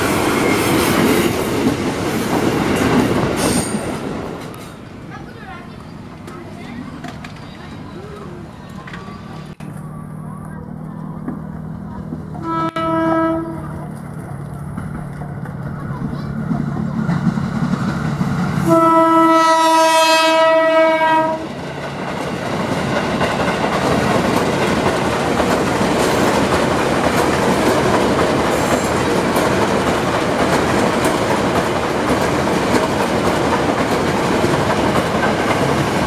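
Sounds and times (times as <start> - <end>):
train wheels on rails: 0.0 - 36.0
train horn blast: 12.4 - 13.8, 18.6 - 21.6.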